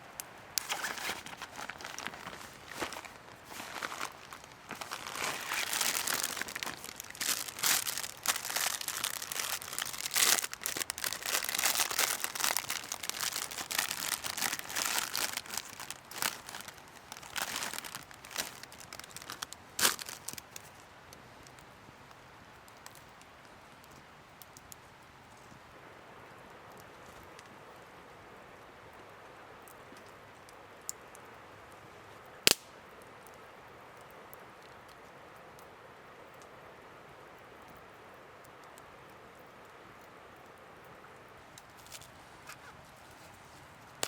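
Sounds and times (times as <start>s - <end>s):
crinkling and crackling: 0.0s - 25.6s, 41.4s - 44.0s
faint steady background: 0.0s - 44.0s.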